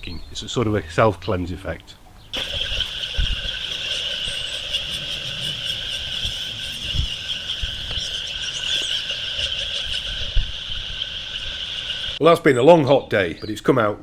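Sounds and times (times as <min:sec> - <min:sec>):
spray hissing: 0:02.4 - 0:12.2.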